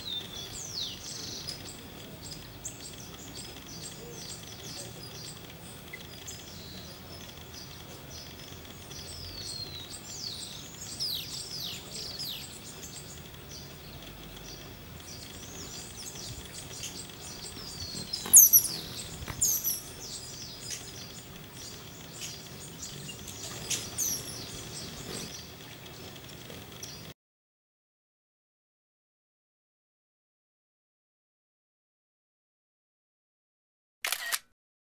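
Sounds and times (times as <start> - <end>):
wild birds chirping and calling: 0.0 - 27.1.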